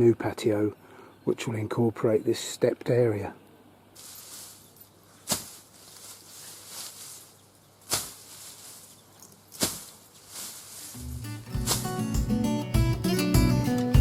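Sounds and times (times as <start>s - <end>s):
faint outdoor background: 0.0s - 14.0s
acoustic guitar music: 11.0s - 14.0s.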